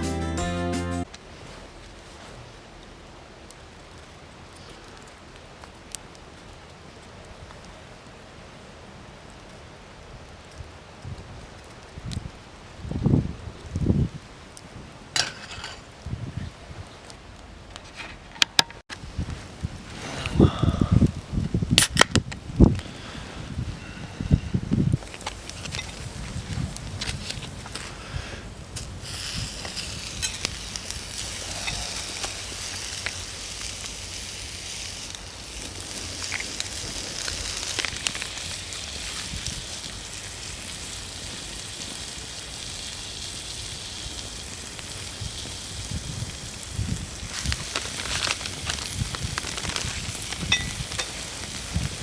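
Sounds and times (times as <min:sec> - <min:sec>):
food sizzling in a pan: 0:28.8 - 0:52.0.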